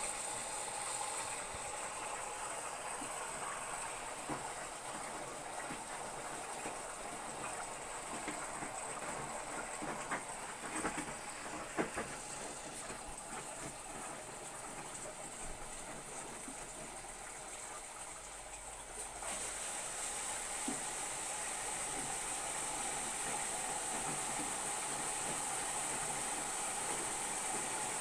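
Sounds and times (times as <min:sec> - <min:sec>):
washing machine water rushing: 0:00.0 - 0:28.0
washing machine clicks and knocks: 0:02.9 - 0:17.9, 0:21.6 - 0:28.0.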